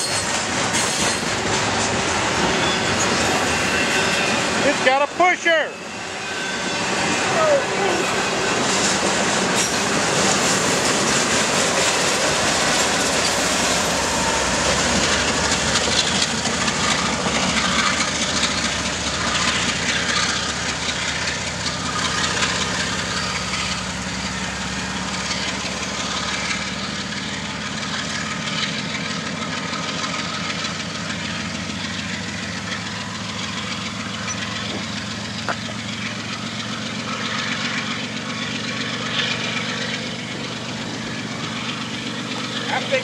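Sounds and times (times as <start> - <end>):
diesel locomotive engine drone: 0.0 - 43.0
freight cars rumbling on rails: 0.0 - 43.0.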